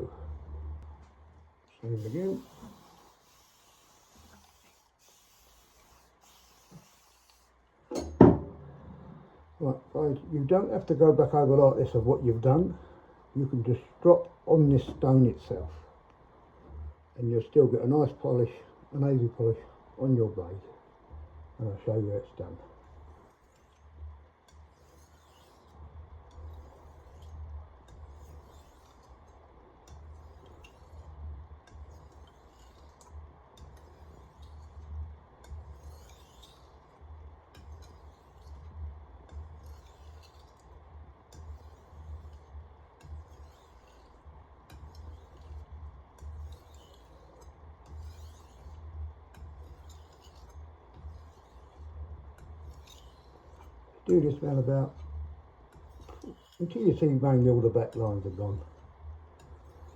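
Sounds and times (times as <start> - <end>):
knife scraping on whetstone: 2.0 - 8.1, 23.0 - 59.9.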